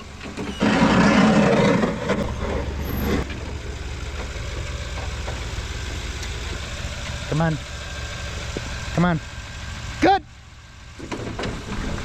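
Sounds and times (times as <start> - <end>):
engine low hum: 0.0 - 12.0
loud rough rushing noise: 0.6 - 3.5.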